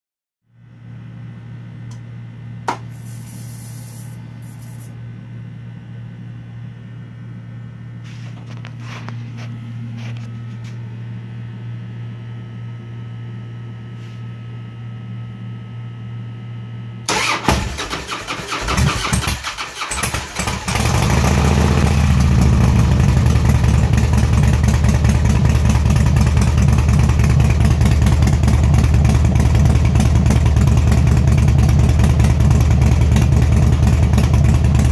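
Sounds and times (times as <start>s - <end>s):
fuel pump humming and hissing: 2.6s - 5.0s
starter cranking engine: 17.1s - 21.4s
motorcycle engine idling: 19.0s - 34.9s.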